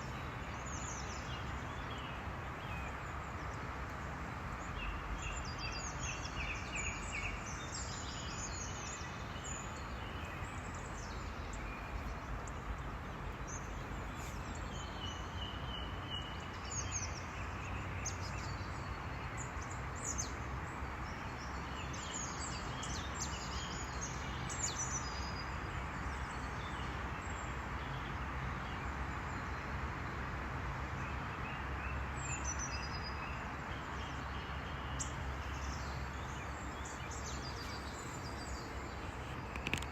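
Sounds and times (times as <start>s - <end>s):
steady background noise: 0.0s - 39.9s
birds chirping: 32.2s - 39.9s.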